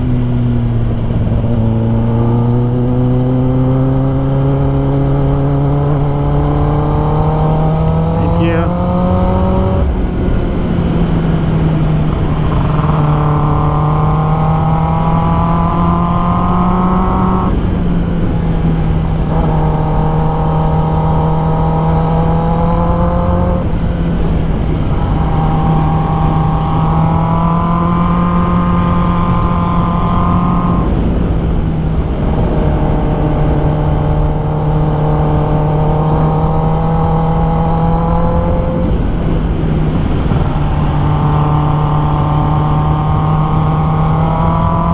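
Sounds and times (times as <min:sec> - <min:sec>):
motorcycle engine rising in pitch: 0:00.0 - 0:44.9.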